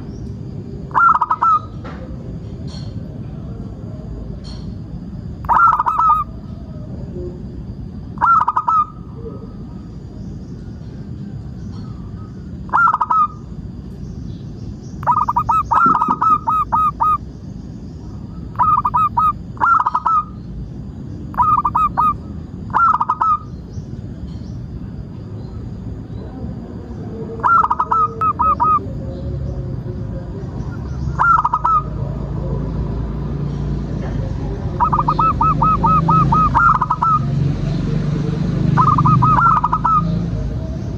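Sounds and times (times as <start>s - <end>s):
dove cooing: 0.8s - 4.2s, 5.4s - 7.5s, 8.2s - 9.9s, 11.7s - 13.5s, 15.0s - 17.2s, 18.1s - 20.4s, 21.3s - 23.5s, 26.2s - 32.9s, 34.0s - 40.9s.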